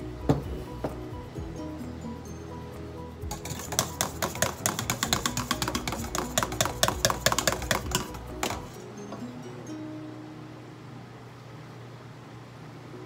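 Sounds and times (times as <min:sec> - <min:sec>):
wire whisk clinking against metal bowl: 0:03.2 - 0:08.8.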